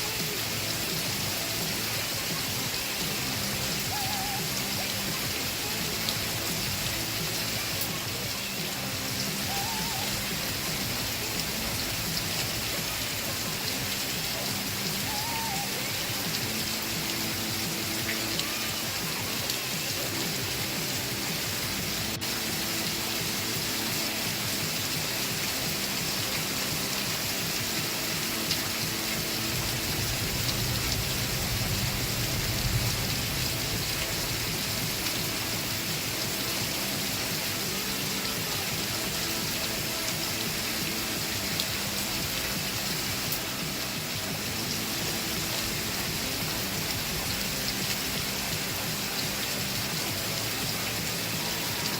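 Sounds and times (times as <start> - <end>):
faint muffled music: 0.0 - 51.9
steady rain falling: 0.0 - 51.9
low rumble: 29.6 - 35.0.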